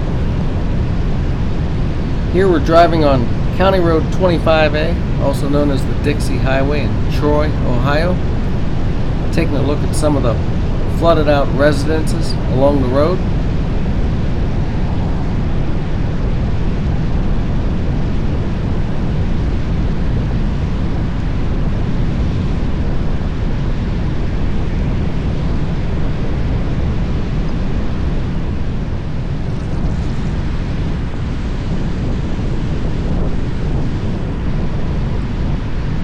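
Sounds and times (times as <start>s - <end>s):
car road noise: 0.0s - 14.3s
wind rushing: 0.0s - 16.9s.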